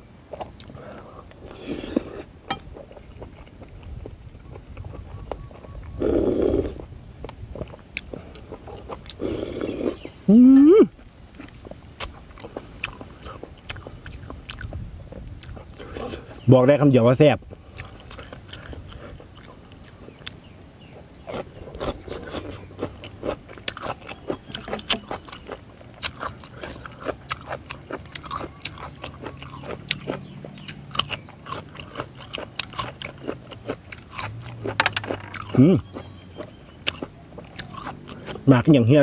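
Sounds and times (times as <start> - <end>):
crunchy vegetables chewing: 0.0 - 10.2, 10.9 - 16.5, 17.4 - 38.6
closed-mouth humming: 0.5 - 16.5.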